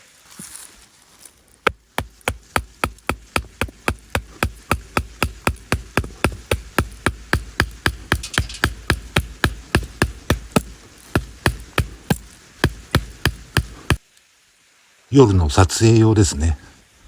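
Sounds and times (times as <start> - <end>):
rapid sharp knocks: 1.7 - 14.0.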